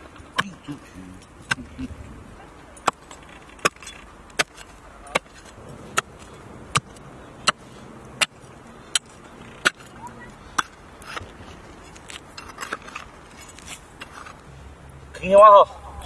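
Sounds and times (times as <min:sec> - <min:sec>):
digging tool striking ground: 0:00.0 - 0:02.0, 0:02.7 - 0:14.4.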